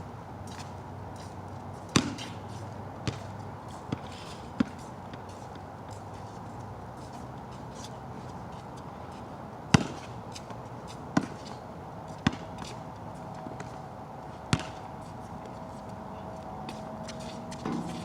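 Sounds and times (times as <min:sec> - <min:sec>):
basketball bouncing on wet court: 0:02.0 - 0:02.3, 0:03.9 - 0:04.8, 0:09.7 - 0:10.0, 0:11.2 - 0:11.4, 0:12.2 - 0:12.5, 0:14.5 - 0:14.8.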